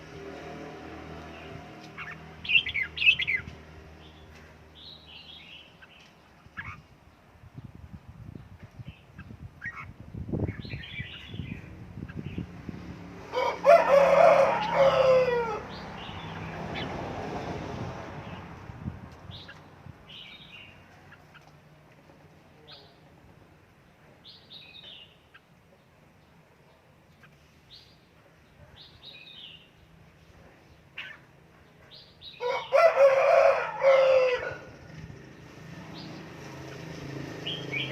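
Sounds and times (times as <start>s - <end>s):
bird chirping: 1.4s - 7.2s, 8.4s - 12.5s, 19.3s - 21.5s, 23.8s - 30.0s, 37.4s - 37.9s
rooster crowing: 13.3s - 15.7s, 32.4s - 34.7s.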